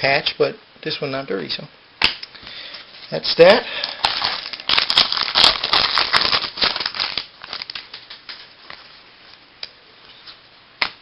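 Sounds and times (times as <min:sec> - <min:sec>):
cards rustling: 0:03.8 - 0:09.0.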